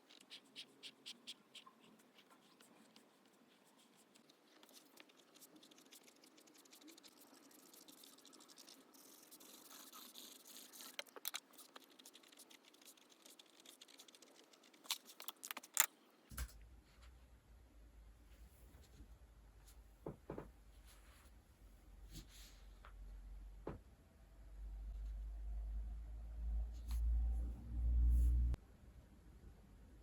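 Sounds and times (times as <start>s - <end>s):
pen scratching on paper: 0.0s - 15.2s.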